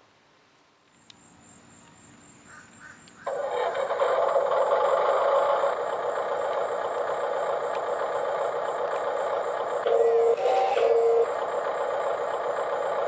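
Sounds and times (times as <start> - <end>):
toy simulated engine sound: 3.3 - 13.0.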